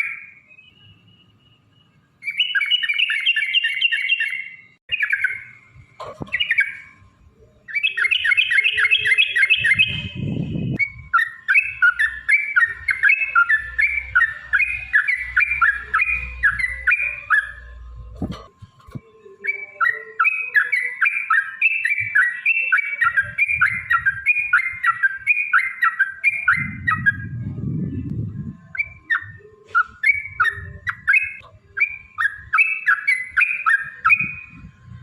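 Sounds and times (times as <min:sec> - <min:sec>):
bird singing bubbling phrases: 0:06.2 - 0:17.8, 0:19.3 - 0:34.6
low rumble: 0:26.6 - 0:28.8.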